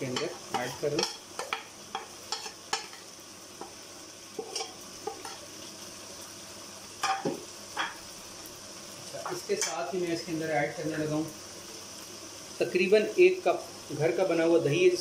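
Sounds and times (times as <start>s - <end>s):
chicken sizzling in a pot: 0.0s - 15.0s
spoon tapping and scraping plate: 4.4s - 5.4s.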